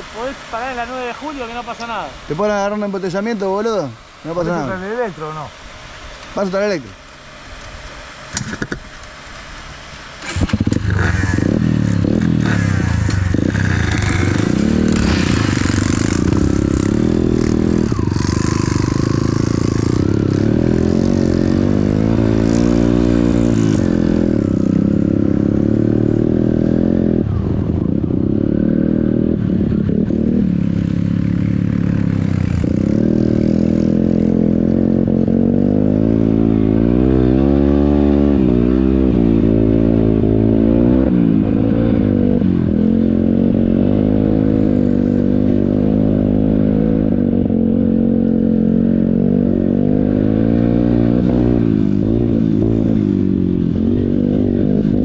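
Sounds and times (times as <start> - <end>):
motorcycle engine revving: 10.0 - 55.0.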